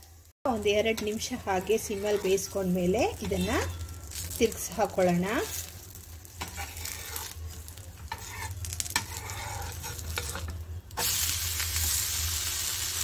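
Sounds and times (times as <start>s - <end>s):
loud sizzle on hot pan: 0.0s - 13.0s
spatula scraping and tapping pan: 0.8s - 5.7s, 6.3s - 11.1s.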